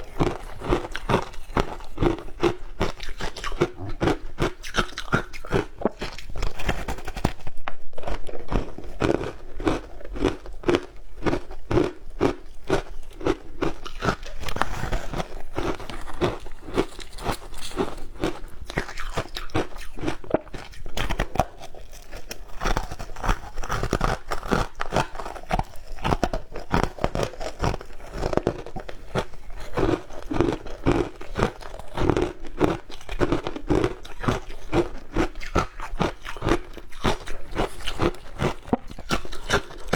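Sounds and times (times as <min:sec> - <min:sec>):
crunching shaved ice: 0:00.0 - 0:07.2, 0:08.2 - 0:39.9.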